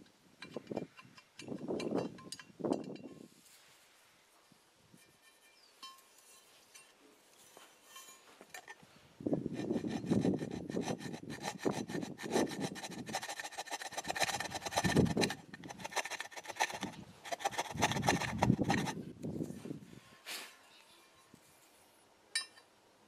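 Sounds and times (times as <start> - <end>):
rasping abrasive scraping: 8.5 - 8.8, 9.4 - 19.0.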